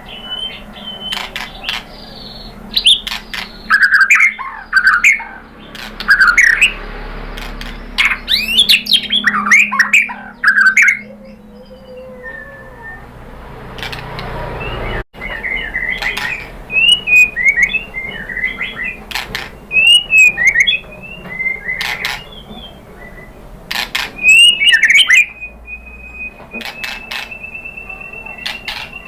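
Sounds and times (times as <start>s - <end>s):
bird whistling song: 0.0s - 6.9s, 7.5s - 13.2s, 14.6s - 29.0s
long steady bird whistle: 0.0s - 6.9s, 7.8s - 13.2s, 14.6s - 23.4s, 24.2s - 29.0s
bird sharp clicking notes: 1.0s - 11.2s, 15.7s - 22.7s, 26.4s - 27.7s, 28.4s - 29.0s.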